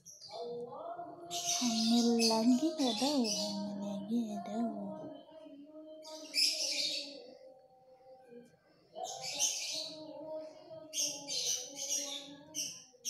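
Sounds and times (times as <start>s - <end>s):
birds chirping: 1.3s - 5.2s.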